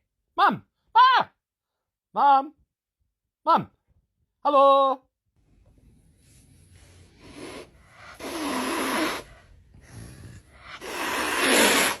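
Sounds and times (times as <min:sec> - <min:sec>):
animal snoring: 0:07.1 - 0:12.0.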